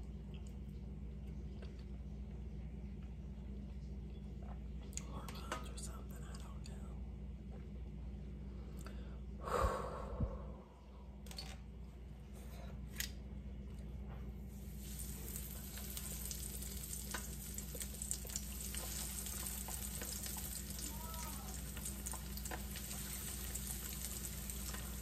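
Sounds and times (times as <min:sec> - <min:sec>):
chicken frying in oil: 0:14.6 - 0:25.0.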